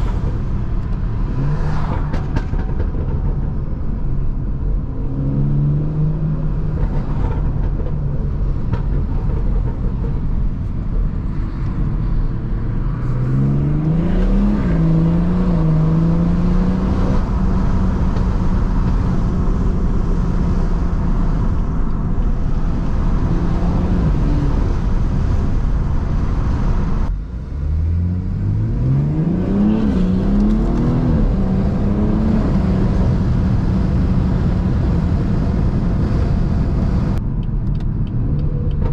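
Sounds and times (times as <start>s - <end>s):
car engine accelerating: 12.4s - 37.2s.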